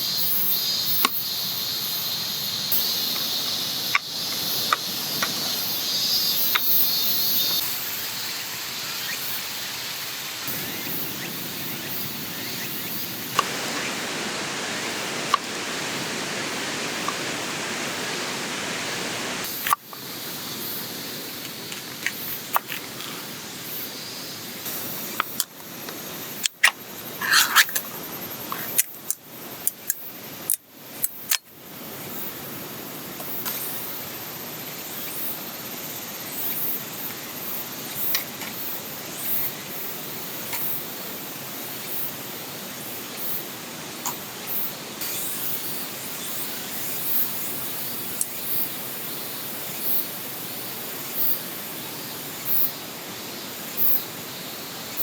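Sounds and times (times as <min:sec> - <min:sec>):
small ticks: 0:00.2 - 0:07.7, 0:24.6 - 0:31.5, 0:48.1 - 0:48.7
stream flowing: 0:09.4 - 0:23.6, 0:24.3 - 0:29.9.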